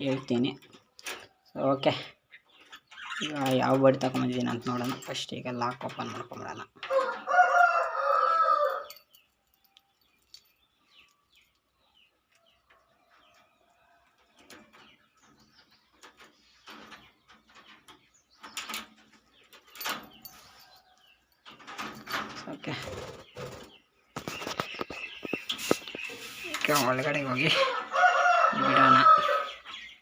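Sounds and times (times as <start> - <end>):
rooster crowing: 6.9 - 9.0, 27.5 - 29.6
faint clicks and rustles: 8.9 - 27.1.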